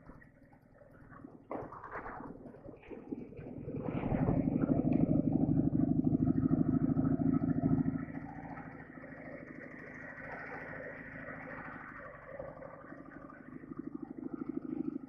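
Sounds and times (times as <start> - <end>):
motorcycle engine running: 3.1 - 15.0.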